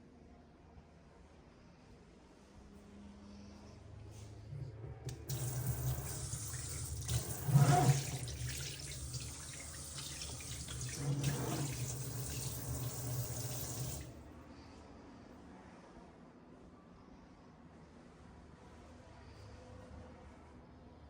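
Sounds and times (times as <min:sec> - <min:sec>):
tap water running into sink: 0:05.1 - 0:14.1.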